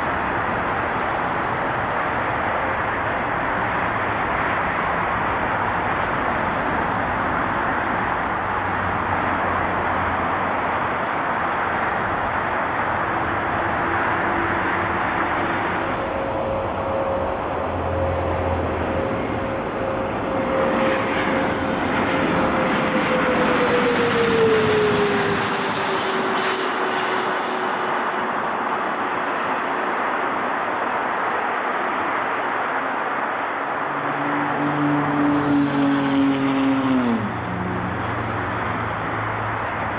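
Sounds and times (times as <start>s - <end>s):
jet engine rushing noise: 12.6s - 37.2s.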